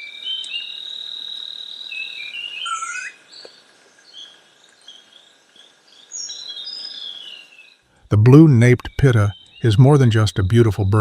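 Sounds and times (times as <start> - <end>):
birds whistling and chirping: 0.0 - 4.3, 6.0 - 7.8, 8.8 - 11.0
faint forest background hiss: 0.0 - 11.0.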